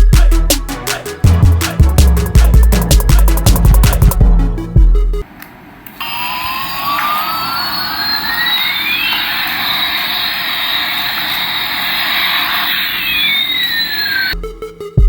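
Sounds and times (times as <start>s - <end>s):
jet engine hiss and whistling: 6.0s - 14.4s.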